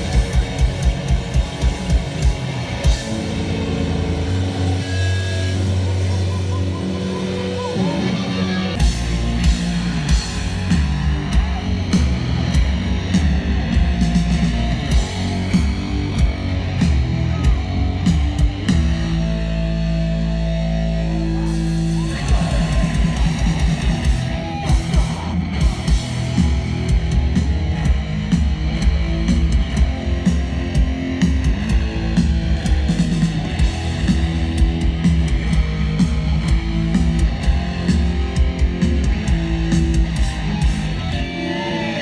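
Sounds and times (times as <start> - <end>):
punk band playing live: 0.0 - 42.0
pounding drums: 22.0 - 41.0.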